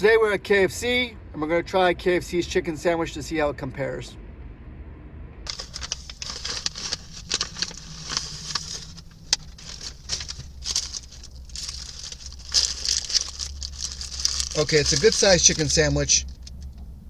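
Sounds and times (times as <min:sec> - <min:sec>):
low steady hum: 0:04.2 - 0:17.0
paper wrapper rustling: 0:05.5 - 0:16.6.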